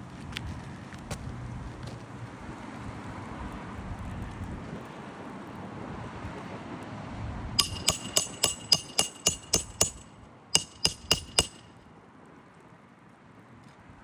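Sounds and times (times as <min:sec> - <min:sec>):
hammer striking steel tool: 0:07.6 - 0:11.8.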